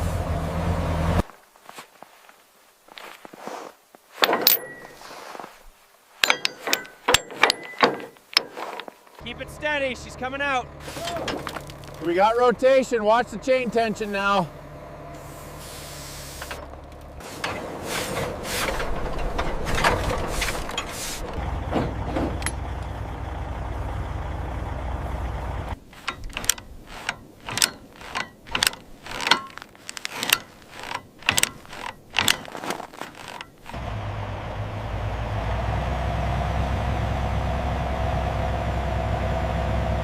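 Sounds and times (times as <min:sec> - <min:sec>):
sharp metal clanks: 0:04.2 - 0:05.1, 0:06.2 - 0:09.2, 0:25.9 - 0:33.8
lifting chain rattling and ratcheting: 0:06.2 - 0:08.9, 0:25.8 - 0:33.8.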